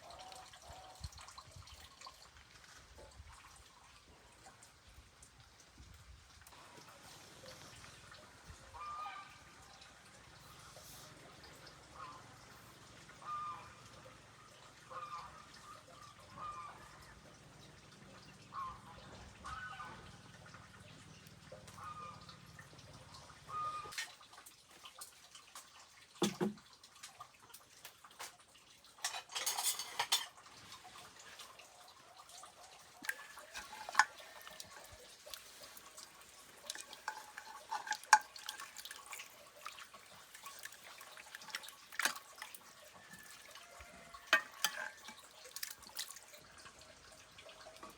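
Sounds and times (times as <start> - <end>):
running water: 0.0 - 47.9
water splashing and dripping: 0.0 - 47.9
dishes and utensils clinking: 29.0 - 30.4, 33.0 - 34.8, 36.7 - 39.3, 44.3 - 45.8.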